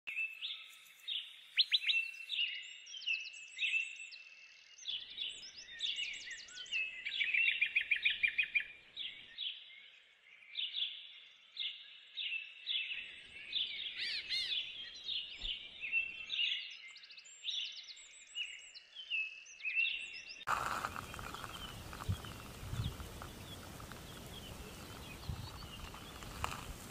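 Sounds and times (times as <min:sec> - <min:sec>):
small birds chirping: 0:00.1 - 0:26.9.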